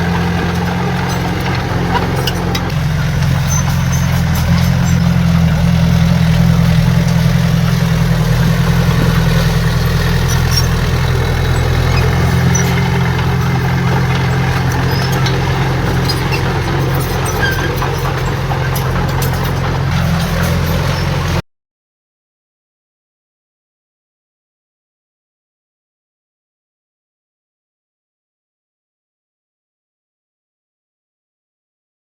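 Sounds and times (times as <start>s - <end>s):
diesel engine humming: 0.0s - 21.4s.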